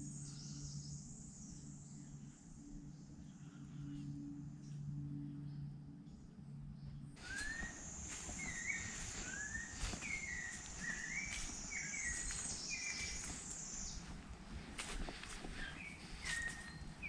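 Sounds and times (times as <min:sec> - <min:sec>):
birds chirping: 0:07.2 - 0:17.0.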